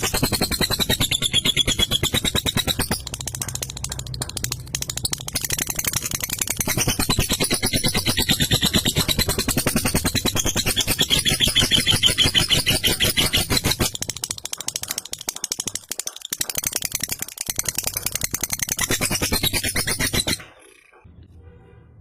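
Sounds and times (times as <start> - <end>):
lovebird rattling chatter: 0.0 - 21.0.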